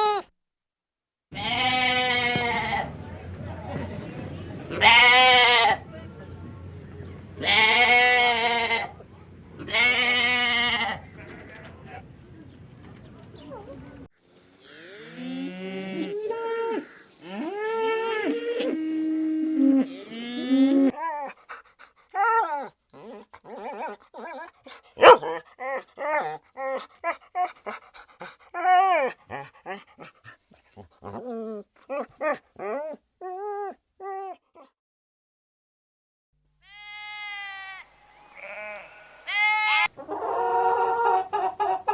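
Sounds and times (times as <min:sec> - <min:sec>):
dog whining and howling: 0:22.2 - 0:27.5, 0:28.5 - 0:29.4, 0:31.1 - 0:34.7
dog yelping and barking: 0:22.2 - 0:27.6, 0:28.5 - 0:30.1.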